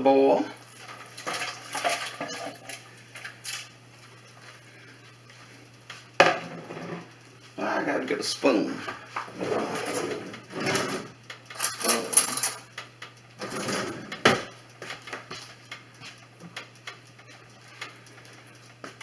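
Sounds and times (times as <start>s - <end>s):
utensils and can clattering: 0.8s - 3.7s, 9.4s - 12.7s.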